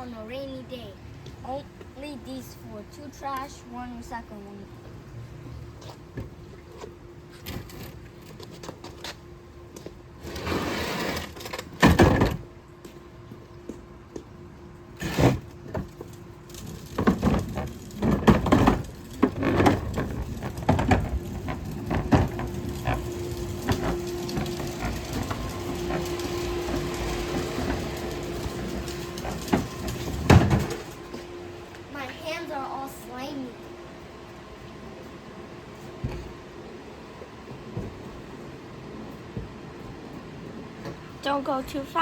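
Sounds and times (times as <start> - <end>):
bin wheels rumbling: 15.0 - 31.2
plastic bins knocking and banging: 16.9 - 30.9.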